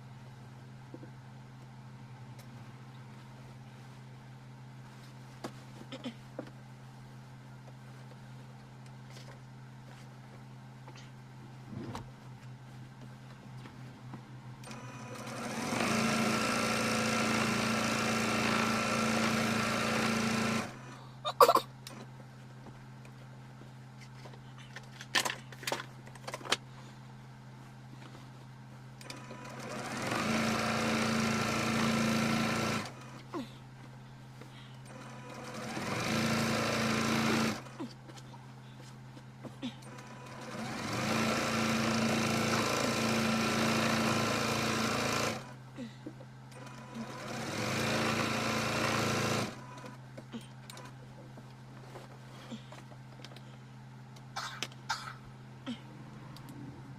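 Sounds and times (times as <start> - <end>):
sewing machine stitching: 14.6 - 20.9, 29.0 - 33.3, 34.9 - 37.8, 39.8 - 45.6, 46.6 - 50.0
low steady hum: 37.6 - 40.0, 49.6 - 56.9.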